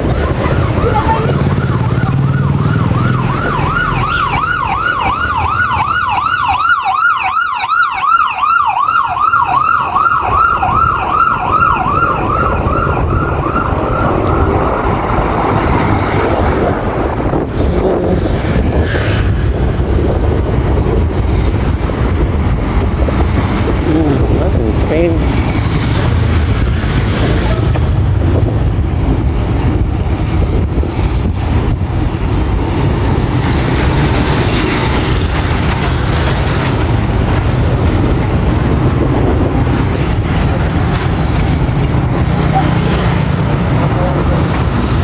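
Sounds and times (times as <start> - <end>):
emergency siren yelping: 0.0 - 17.1
road traffic: 0.0 - 45.0.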